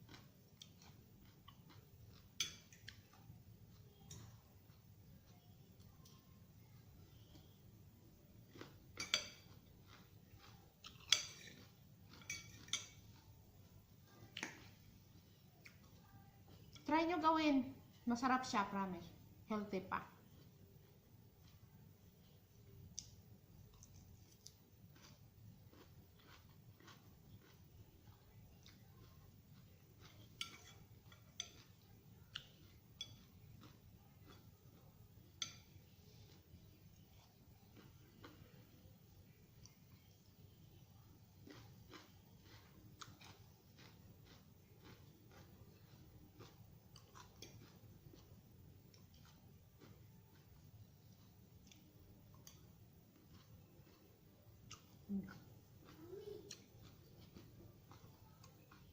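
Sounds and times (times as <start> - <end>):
faint background hum: 0.0 - 58.9
cutlery clinking against a dish: 2.2 - 3.1, 8.9 - 9.6, 10.9 - 13.2, 30.2 - 31.8, 32.9 - 33.3, 35.3 - 35.8
eating crunches and clicks: 22.9 - 30.7, 41.4 - 58.9.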